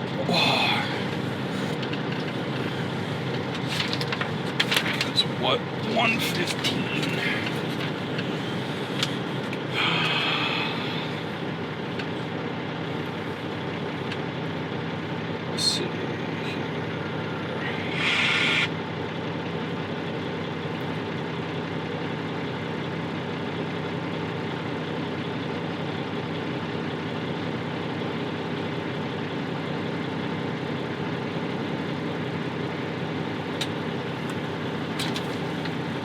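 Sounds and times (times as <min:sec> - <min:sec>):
truck diesel engine idling: 0:00.0 - 0:36.0
air hiss: 0:17.8 - 0:18.7.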